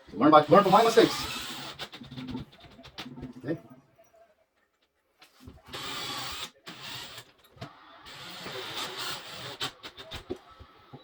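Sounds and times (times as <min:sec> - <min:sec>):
power drill driving screws: 0:00.5 - 0:02.0, 0:05.7 - 0:10.8.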